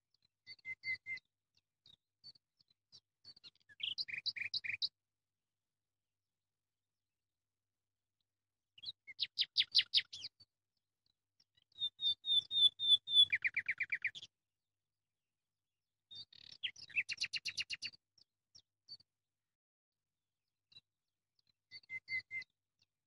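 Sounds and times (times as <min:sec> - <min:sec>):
songbird trilling: 0:11.8 - 0:14.2.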